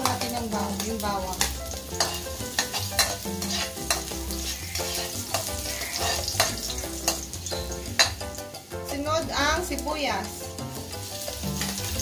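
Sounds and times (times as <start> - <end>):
garlic sizzling in oil: 0.0 - 12.0
metal spatula scraping a wok: 1.4 - 8.6, 10.8 - 12.0.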